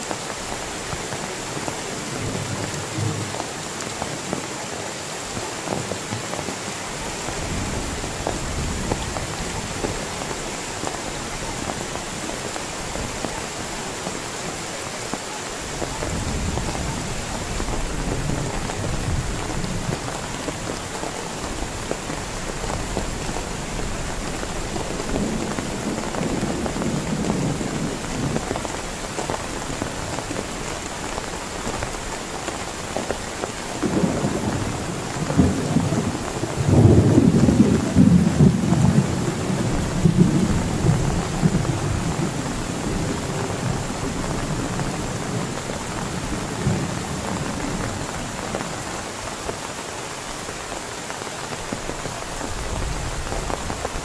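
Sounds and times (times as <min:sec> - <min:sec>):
heavy rain falling: 0:00.0 - 0:54.0
low thunder rumbling: 0:15.7 - 0:30.8, 0:33.8 - 0:48.8.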